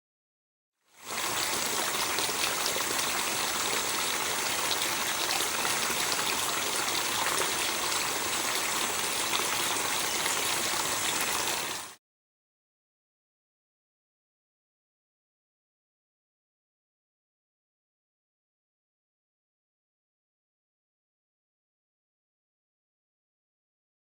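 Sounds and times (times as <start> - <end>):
running water rushing: 1.0 - 12.0.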